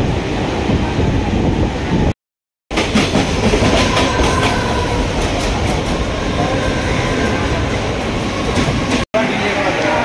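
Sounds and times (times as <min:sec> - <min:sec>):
train wheels rumbling on rails: 0:02.7 - 0:09.2.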